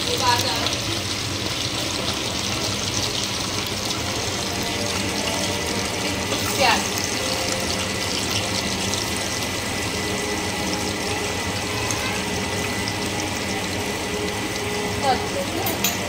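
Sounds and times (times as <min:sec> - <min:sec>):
onion sizzling in hot oil: 0:00.0 - 0:16.0.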